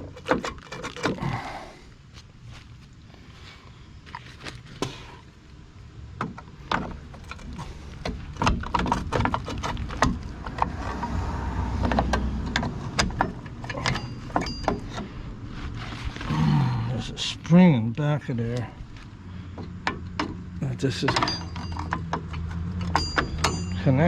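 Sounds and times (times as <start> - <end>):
metal clicks and knocks: 6.2 - 10.8, 11.8 - 15.1, 19.6 - 23.8
low rumble: 9.0 - 14.3.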